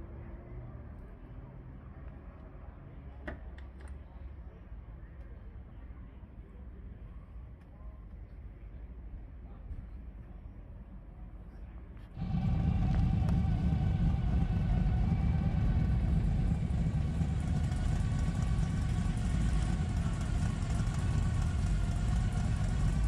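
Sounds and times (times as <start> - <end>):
car engine idling: 12.2 - 23.0.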